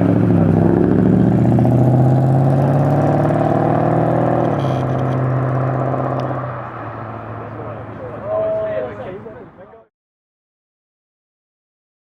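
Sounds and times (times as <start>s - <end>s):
car engine pulling away: 0.0s - 9.0s.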